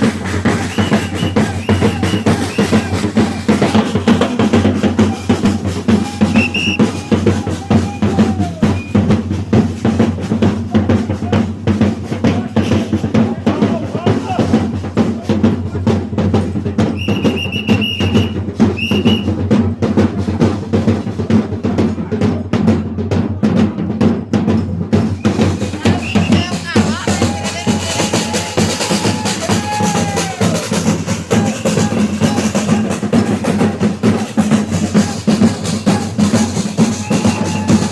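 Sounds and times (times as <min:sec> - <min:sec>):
percussion band drumming: 0:00.0 - 0:37.9
shrill whistle tones: 0:00.6 - 0:03.0, 0:05.1 - 0:09.0, 0:17.0 - 0:19.3, 0:25.2 - 0:26.5, 0:36.8 - 0:37.9.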